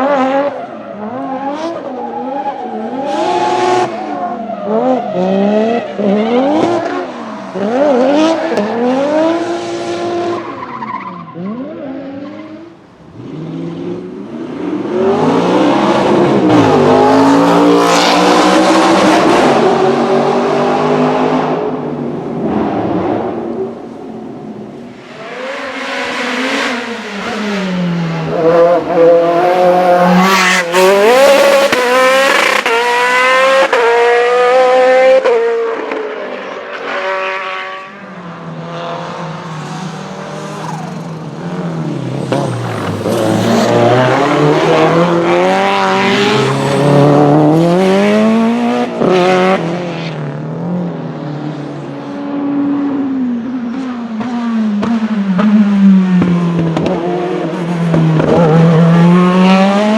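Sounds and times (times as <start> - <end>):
race car engine accelerating: 11.3 - 24.0, 38.6 - 50.8, 53.8 - 59.9.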